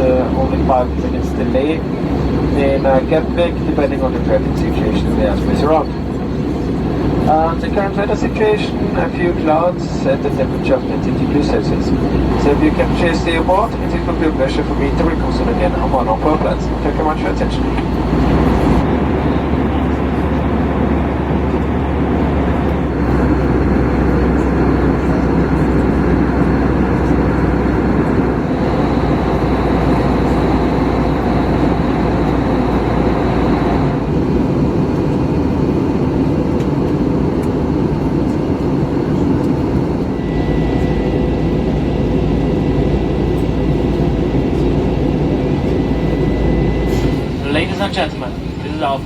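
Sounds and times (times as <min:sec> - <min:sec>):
airplane cabin engine rush: 0:00.0 - 0:49.0
faint high whines: 0:39.7 - 0:49.0.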